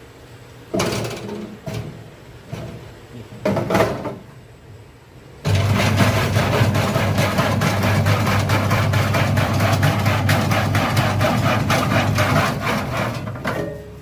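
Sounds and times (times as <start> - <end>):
slicing machine motor hum: 5.5 - 13.4.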